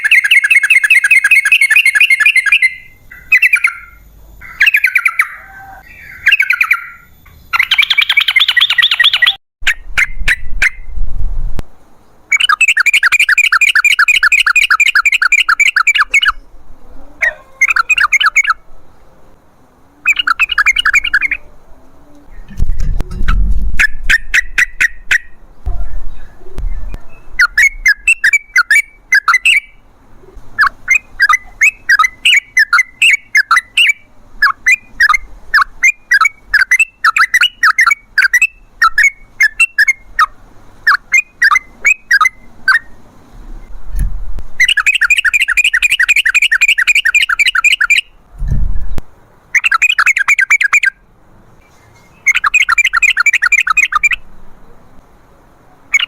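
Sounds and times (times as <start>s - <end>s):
buzzy bird trills: 0.0s - 9.4s, 12.3s - 18.7s, 19.8s - 22.5s, 44.6s - 48.2s, 49.6s - 51.0s, 51.6s - 54.9s
bird singing chattering song: 0.0s - 10.9s, 12.0s - 16.6s, 17.2s - 19.1s, 19.7s - 22.6s, 23.2s - 43.0s, 44.6s - 48.2s, 49.5s - 55.1s
dull low thumps: 48.3s - 49.1s.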